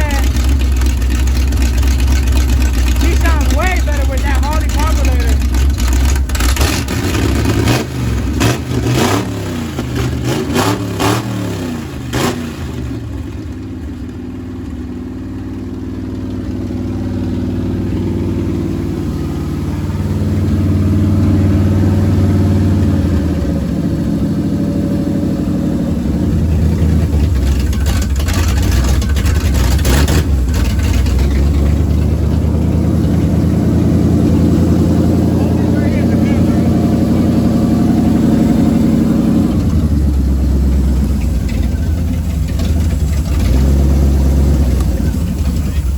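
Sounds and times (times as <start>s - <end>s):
car engine revving and idling: 0.0s - 45.9s.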